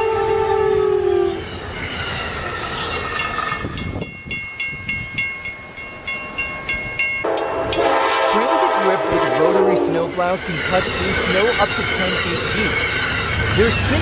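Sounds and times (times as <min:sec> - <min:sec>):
train horn chord: 0:00.0 - 0:01.4, 0:07.2 - 0:10.3
rapid high metallic ringing: 0:09.3 - 0:14.0.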